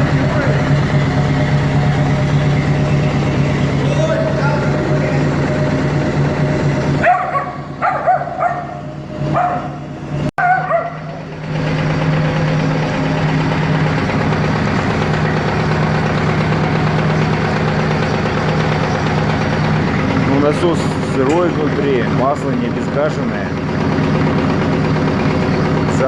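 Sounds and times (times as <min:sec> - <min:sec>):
vacuum pump humming: 0:00.0 - 0:26.0.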